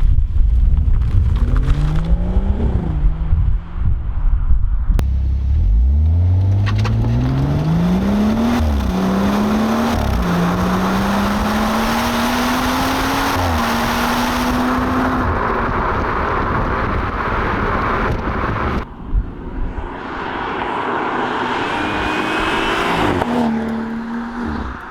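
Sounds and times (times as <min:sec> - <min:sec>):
wind and road noise: 0:00.0 - 0:24.9
car engine accelerating hard: 0:05.0 - 0:18.8, 0:20.0 - 0:24.9.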